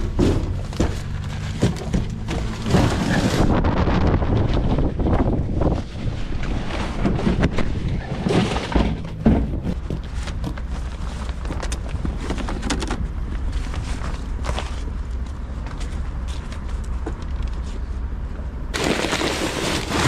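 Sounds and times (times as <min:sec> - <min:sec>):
wind buffeting microphone: 0:03.0 - 0:08.2.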